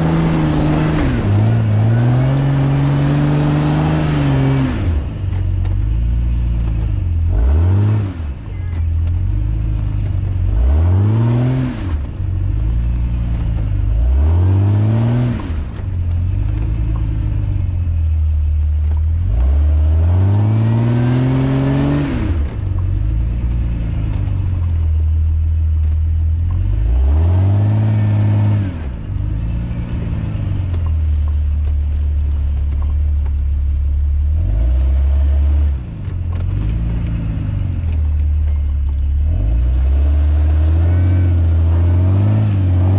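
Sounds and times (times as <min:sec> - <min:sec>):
off-road vehicle engine revving: 0:00.0 - 0:42.9.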